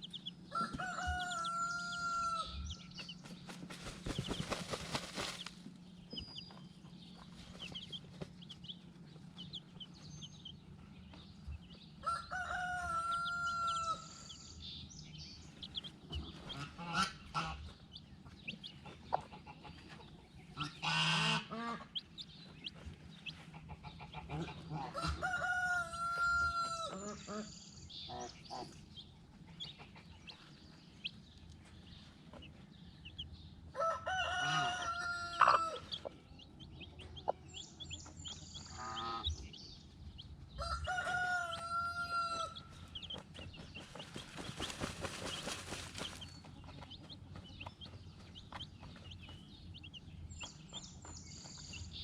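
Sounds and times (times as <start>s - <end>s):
rooster crowing: 0.5s - 2.7s, 12.0s - 14.3s, 24.9s - 27.0s, 33.7s - 35.9s, 40.6s - 42.7s
hens clucking: 15.5s - 27.5s, 28.1s - 32.7s, 33.8s - 39.6s, 40.6s - 50.8s.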